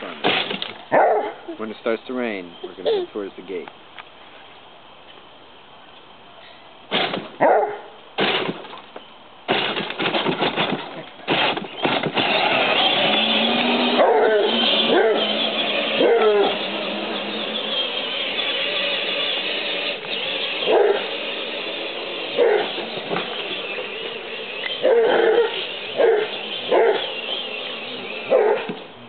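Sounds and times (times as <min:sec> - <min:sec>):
hound barking and baying: 0:00.9 - 0:01.6, 0:07.4 - 0:08.0, 0:13.8 - 0:18.0, 0:20.4 - 0:23.5, 0:24.6 - 0:27.5, 0:28.1 - 0:28.8.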